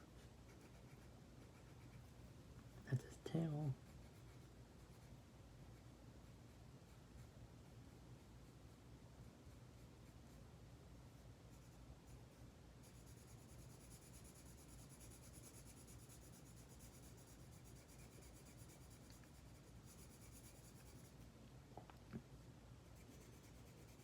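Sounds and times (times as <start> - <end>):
steady low hum: 0.0 - 24.0
colouring strokes on paper: 0.4 - 2.2, 11.5 - 21.2, 22.8 - 24.0.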